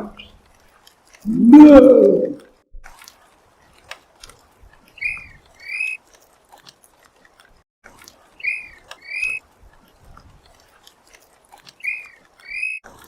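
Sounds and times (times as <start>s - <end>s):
bird whistled calls: 5.0s - 6.0s, 8.4s - 9.4s, 11.8s - 12.8s.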